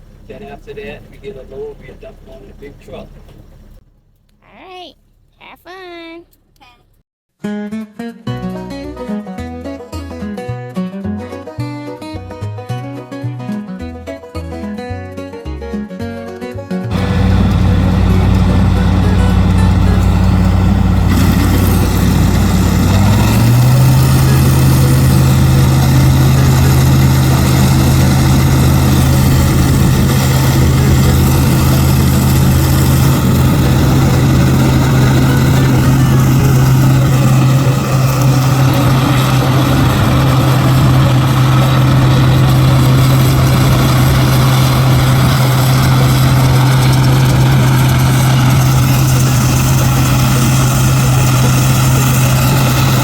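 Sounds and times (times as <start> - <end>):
combine harvester engine running: 0.0 - 3.8, 16.9 - 53.0.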